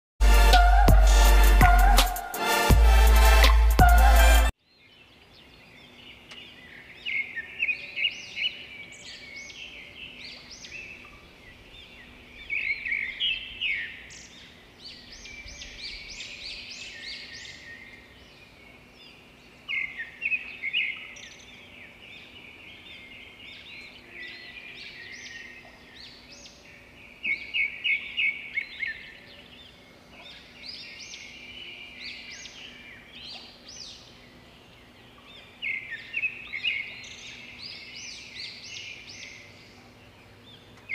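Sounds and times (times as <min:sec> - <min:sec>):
songbirds chirping and twittering: 0:03.8 - 0:40.9.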